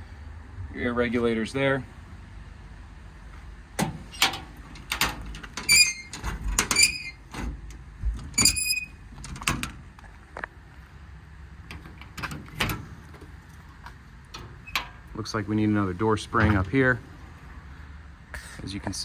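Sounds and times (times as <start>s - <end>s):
metal door squeaks: 3.8s - 7.6s, 8.3s - 9.0s, 14.4s - 15.0s
metal latch clicks and clunks: 3.8s - 9.8s, 11.7s - 15.1s.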